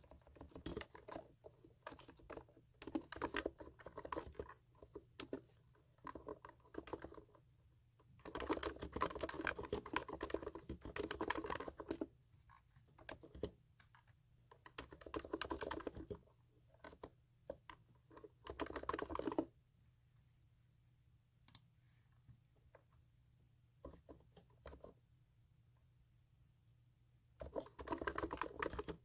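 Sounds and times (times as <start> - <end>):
computer keyboard typing: 0.0 - 7.4, 8.2 - 19.5, 27.4 - 29.0.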